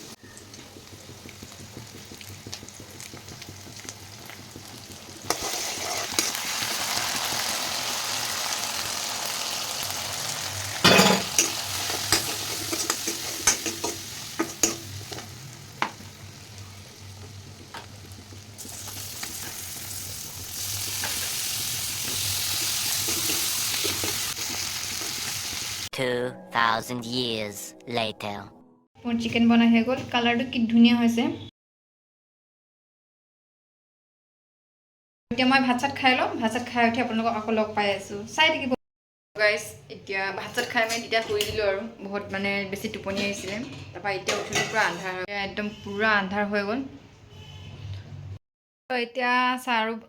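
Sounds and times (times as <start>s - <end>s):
food sizzling in oil: 0.0s - 25.9s.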